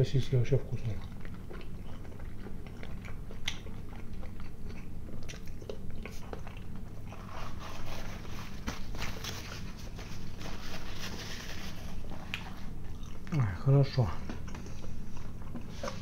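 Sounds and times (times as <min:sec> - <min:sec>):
man chewing with wet smacks: 0:00.5 - 0:07.3, 0:11.9 - 0:16.0
paper napkin rustling: 0:07.1 - 0:12.8.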